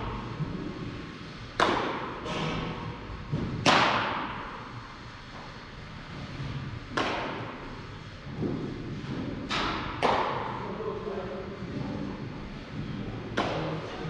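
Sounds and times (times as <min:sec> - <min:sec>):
baseball striking with echo: 0:01.6 - 0:02.8, 0:03.4 - 0:04.7, 0:06.9 - 0:07.7, 0:09.6 - 0:10.6, 0:13.3 - 0:13.9.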